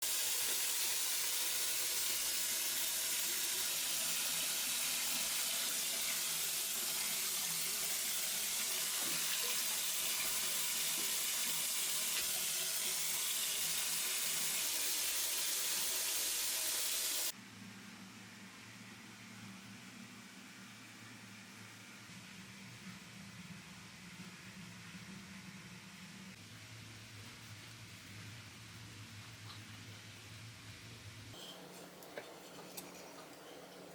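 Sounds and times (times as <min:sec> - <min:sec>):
water running from a tap: 0:00.0 - 0:17.3, 0:31.6 - 0:33.9.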